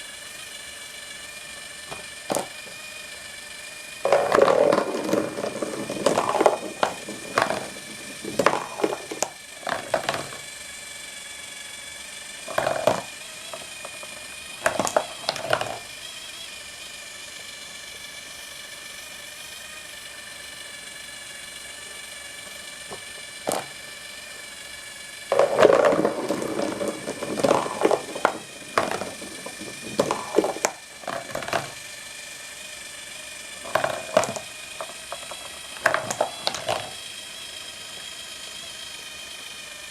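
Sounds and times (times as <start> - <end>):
small electric motor humming: 0.0 - 39.9
marbles clattering on cardboard tracks: 1.8 - 2.9, 4.0 - 10.6, 12.4 - 15.9, 22.4 - 23.9, 25.3 - 32.0, 33.4 - 37.2.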